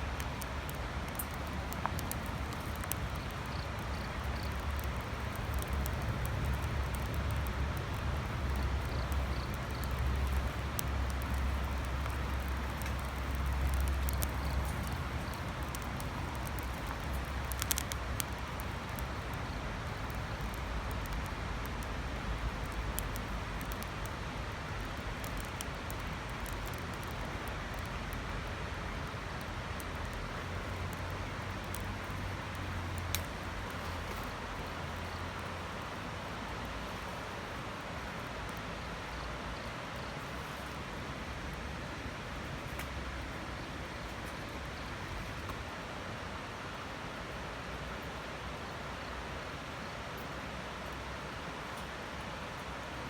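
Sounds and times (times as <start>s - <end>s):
low rush of flame: 0.0s - 38.6s
wood crackling and popping: 0.0s - 38.6s, 42.4s - 45.8s.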